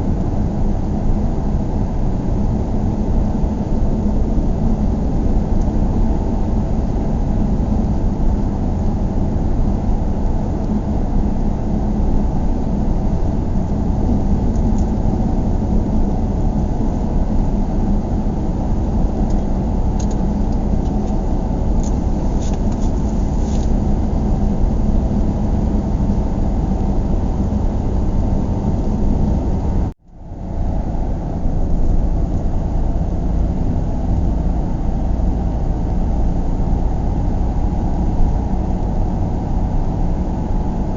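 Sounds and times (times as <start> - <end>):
car interior road rumble: 0.0 - 40.9.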